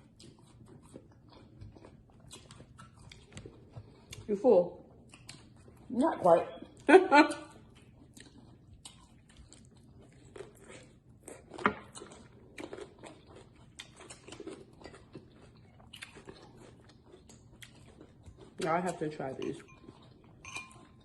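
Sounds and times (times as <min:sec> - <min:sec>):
crunchy chewing and bites: 0:00.0 - 0:04.2, 0:07.6 - 0:19.0.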